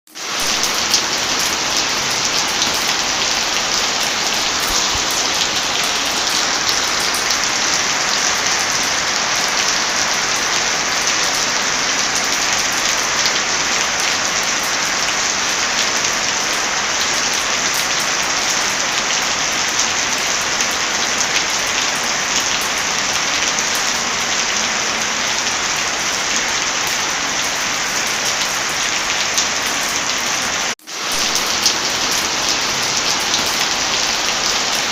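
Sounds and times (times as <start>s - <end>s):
heavy rain falling: 0.1s - 34.9s.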